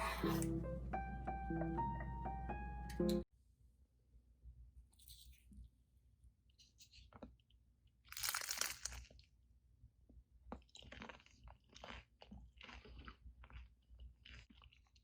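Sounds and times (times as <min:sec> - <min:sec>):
crunchy food bitten and chewed: 0:06.9 - 0:15.0.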